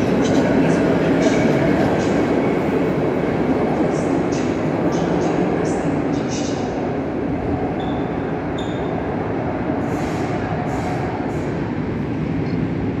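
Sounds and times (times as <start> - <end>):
train wheels rumbling on rails: 0.0 - 13.0
high wheel squeaks: 7.8 - 8.9.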